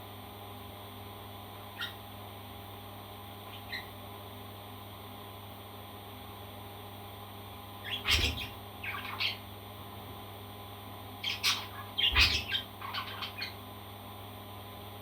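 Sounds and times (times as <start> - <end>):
steady low hum: 0.0 - 15.0
faint parrot chirps: 1.7 - 2.0, 3.5 - 4.0, 7.8 - 9.5, 11.2 - 13.6.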